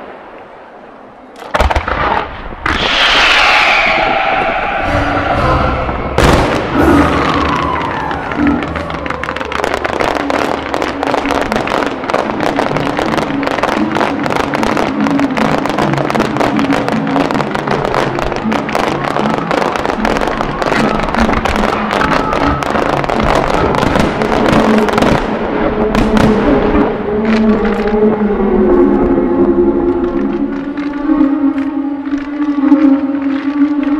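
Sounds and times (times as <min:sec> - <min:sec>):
fireworks popping and crackling: 0:01.4 - 0:03.4, 0:06.2 - 0:28.0, 0:30.0 - 0:33.9
music playing: 0:04.6 - 0:33.9.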